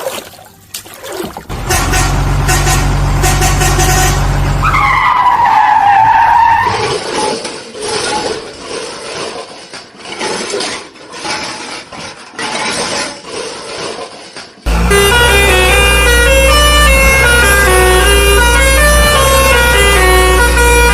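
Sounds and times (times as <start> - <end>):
low vehicle drone: 1.5 - 5.1, 14.7 - 20.9.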